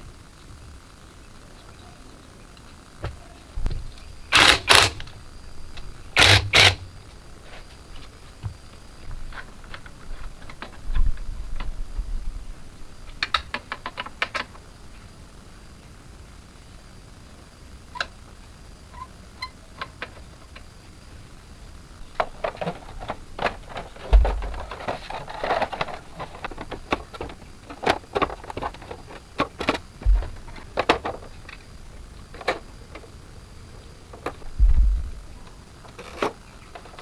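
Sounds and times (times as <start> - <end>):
hand tools clicking and knocking: 4.3 - 5.2, 5.8 - 6.9
dull low thuds: 30.0 - 30.5, 34.5 - 35.3.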